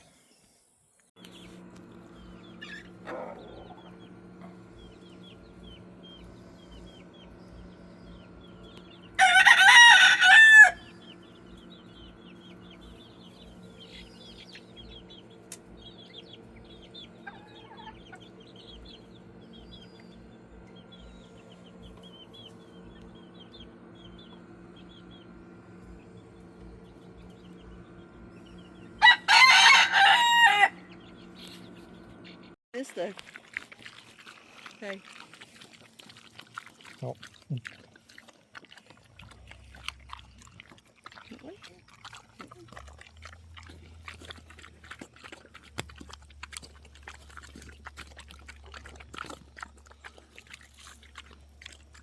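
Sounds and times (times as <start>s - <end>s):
low hum: 1.2s - 32.6s
rooster crowing: 9.2s - 11.0s, 29.0s - 30.9s.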